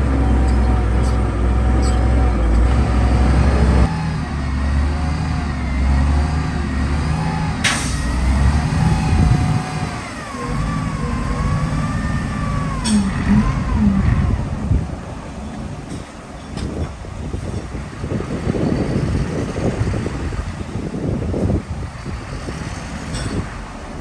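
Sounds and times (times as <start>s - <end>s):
heavy machinery engine drone: 0.0s - 24.0s
high wavering squeals: 8.7s - 14.4s.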